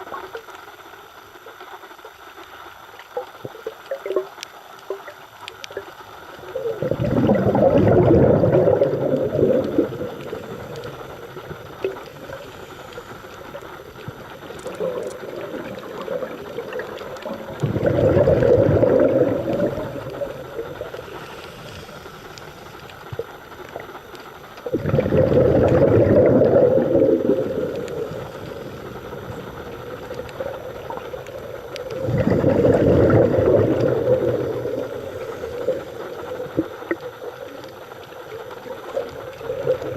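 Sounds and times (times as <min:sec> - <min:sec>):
underwater bubbles gurgling: 0:00.0 - 0:39.9
underwater hiss: 0:00.0 - 0:39.9
small clicks: 0:00.1 - 0:06.4.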